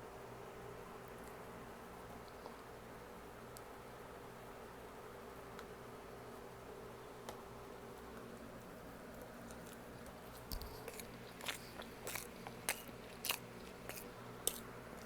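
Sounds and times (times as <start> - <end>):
steady low hum: 0.0 - 15.0
person chewing with wet smacks: 9.1 - 15.0.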